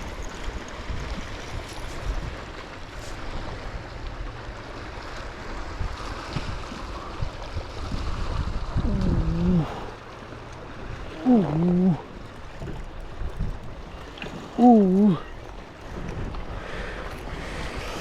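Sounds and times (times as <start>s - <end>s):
water lapping around kayak: 0.0s - 18.0s
wind buffeting microphone: 5.2s - 18.0s
wordless vocal exclamation: 8.8s - 9.9s, 11.2s - 12.0s, 14.6s - 15.3s.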